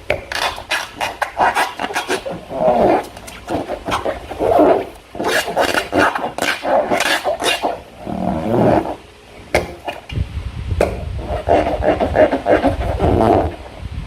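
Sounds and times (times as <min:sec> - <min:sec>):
slime squelching: 0:00.0 - 0:10.1.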